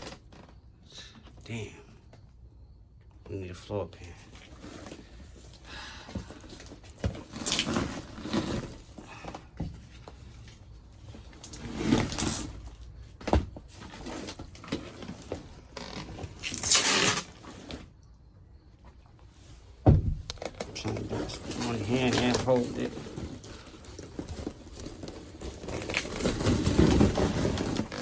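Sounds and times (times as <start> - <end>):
carpet rustling and tearing: 6.4 - 9.0, 11.1 - 12.8, 13.8 - 17.9, 20.4 - 28.0.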